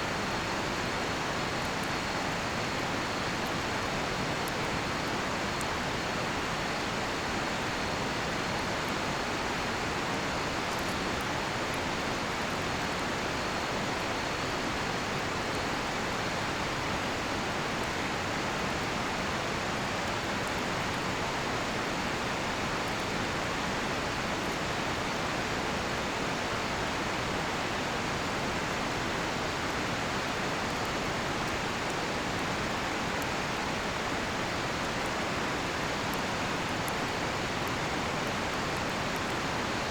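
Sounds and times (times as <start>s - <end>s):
campfire crackling: 0.1s - 39.9s.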